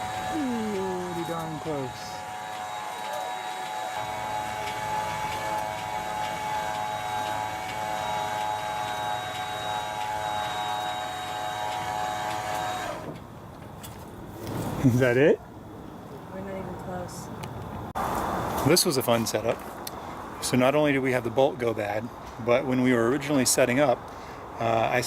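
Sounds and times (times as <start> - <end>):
electric motor whining: 0.0 - 13.2.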